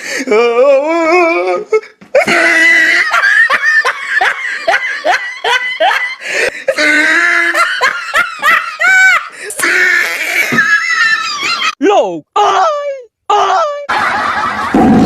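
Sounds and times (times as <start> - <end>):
people laughing hard: 2.2 - 11.8, 13.8 - 15.0.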